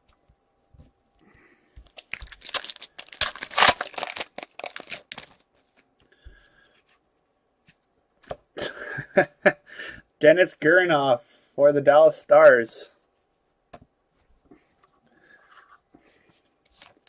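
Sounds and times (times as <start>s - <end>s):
foil wrapper tearing and crinkling: 2.0s - 5.4s.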